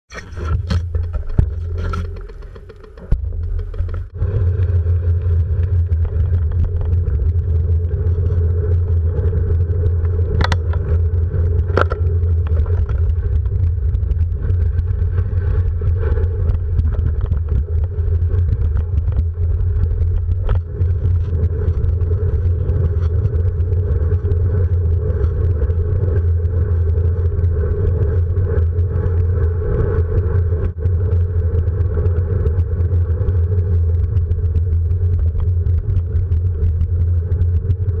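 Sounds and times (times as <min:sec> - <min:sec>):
vehicle road rumble: 0:00.0 - 0:38.0.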